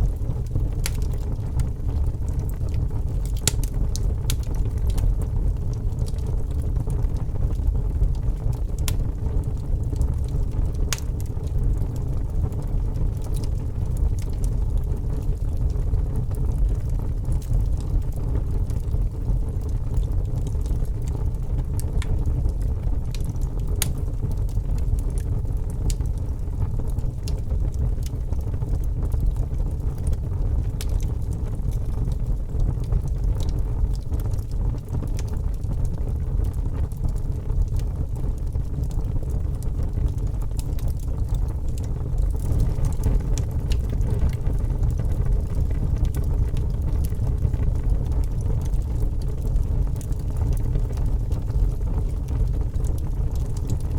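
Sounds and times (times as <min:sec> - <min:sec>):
fire crackling and popping: 0:00.0 - 0:53.9
fire rumbling: 0:00.0 - 0:53.9.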